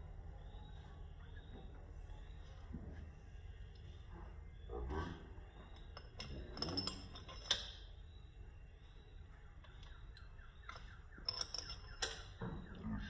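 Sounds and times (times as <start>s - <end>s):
metal parts and tools clinking: 5.8s - 7.9s, 10.6s - 12.6s.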